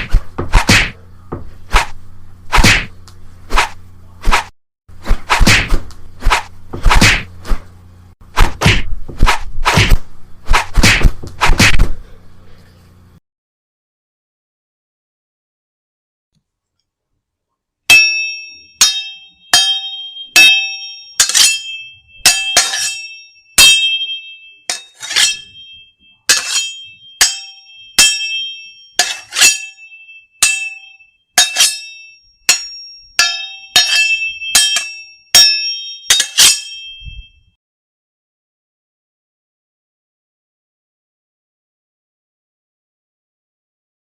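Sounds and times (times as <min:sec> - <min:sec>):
bell-like metallic clinks: 0:17.9 - 0:37.4.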